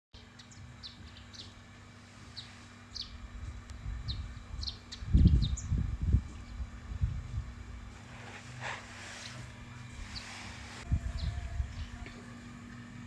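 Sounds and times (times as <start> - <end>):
small birds chirping: 0.2 - 6.7, 9.2 - 12.2
low rumble on microphone: 2.3 - 12.6.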